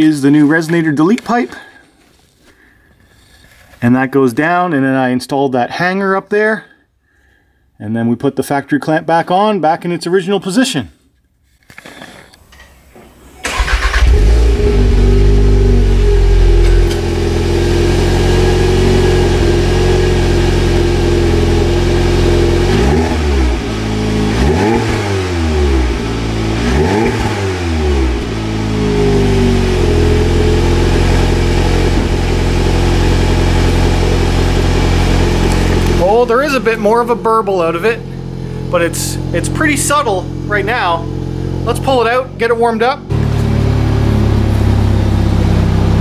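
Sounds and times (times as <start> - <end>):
car engine idling and revving: 13.2 - 46.0.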